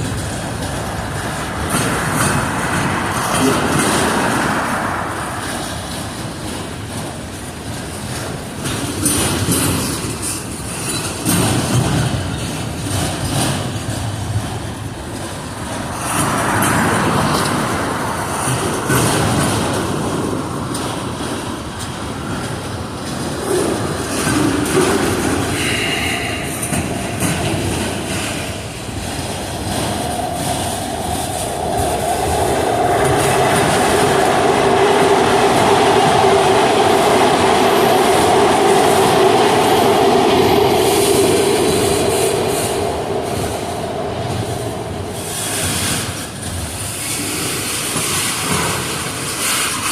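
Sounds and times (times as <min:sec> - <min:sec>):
freight train wheels clicking: 0:00.0 - 0:49.9.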